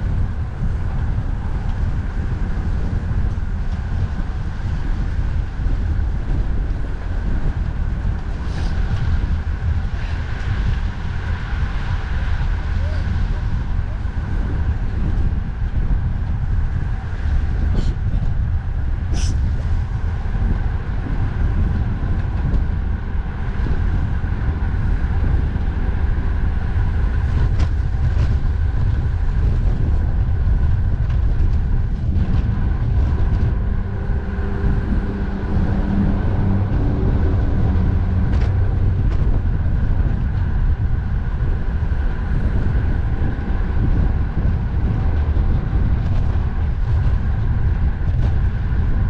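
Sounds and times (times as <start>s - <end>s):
road traffic drone: 0.0s - 49.0s
wind rumble on microphone: 0.0s - 49.0s.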